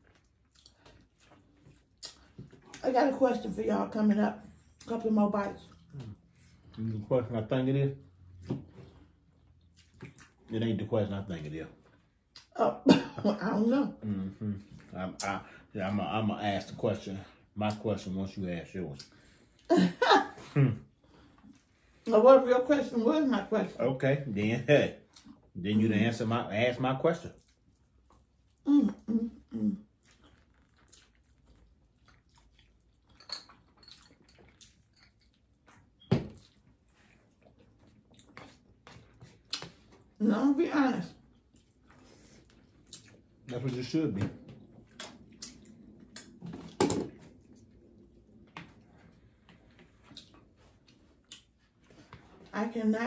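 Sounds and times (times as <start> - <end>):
chewing and mouth noises: 0.0 - 2.8, 8.1 - 10.5, 27.2 - 40.2, 41.1 - 52.5.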